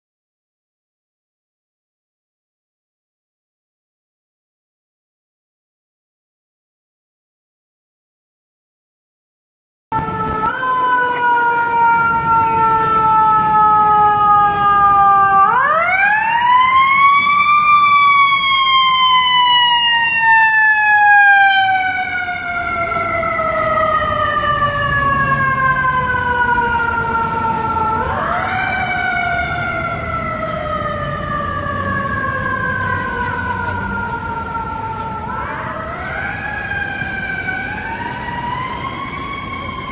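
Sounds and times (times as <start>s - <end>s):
fire engine siren wailing: 9.9s - 39.9s.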